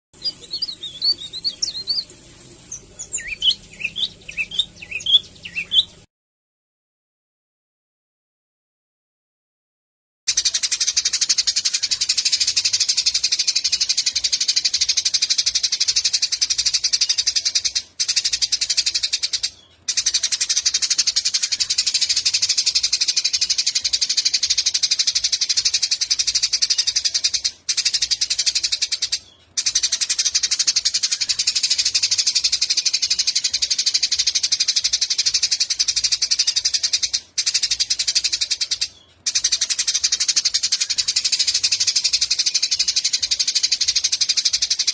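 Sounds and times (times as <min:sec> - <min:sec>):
sparrows chirping: 0:00.2 - 0:06.1, 0:10.3 - 0:44.9.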